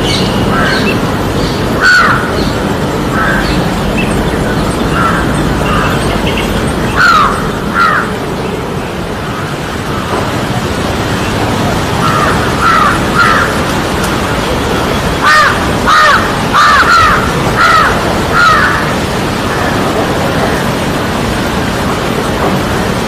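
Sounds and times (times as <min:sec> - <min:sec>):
parrot harsh calls: 0:00.0 - 0:02.5, 0:04.8 - 0:08.1, 0:15.2 - 0:19.0
steady background hiss: 0:00.0 - 0:23.0.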